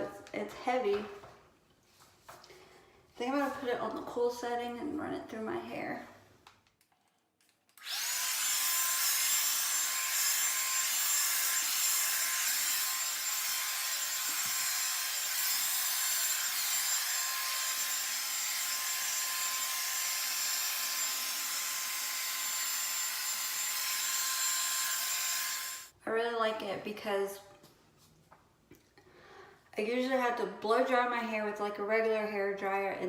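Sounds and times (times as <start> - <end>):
hair dryer fan hiss and motor whine: 7.8 - 9.5.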